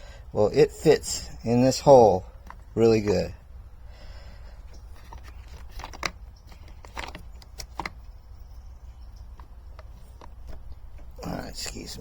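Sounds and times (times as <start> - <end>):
steady low hum: 0.0 - 12.0
copper tubing clicking and tapping: 4.6 - 11.3.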